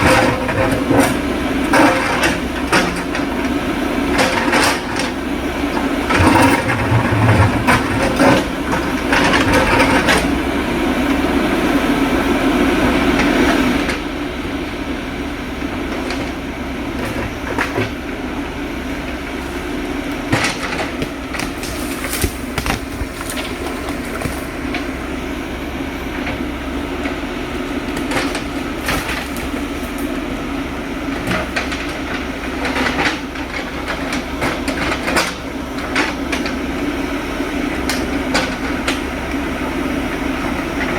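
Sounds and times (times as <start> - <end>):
backhoe diesel engine running: 0.0 - 40.9.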